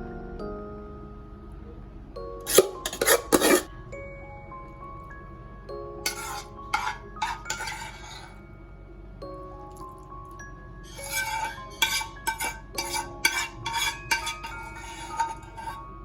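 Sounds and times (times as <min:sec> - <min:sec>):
soft background music: 0:00.0 - 0:16.0
utensils scraping and clinking dishes: 0:02.5 - 0:03.7, 0:06.1 - 0:08.4, 0:10.8 - 0:15.9.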